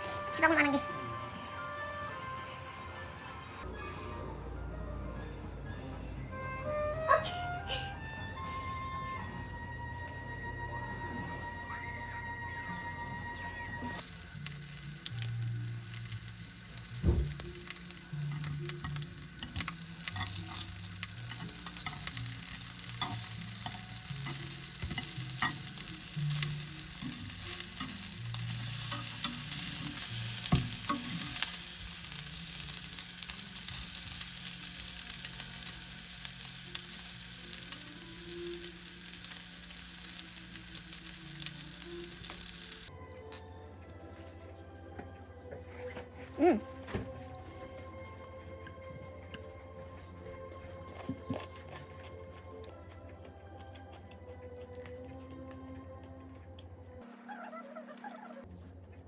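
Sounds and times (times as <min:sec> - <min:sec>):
food sizzling in a pan: 0:13.9 - 0:42.9.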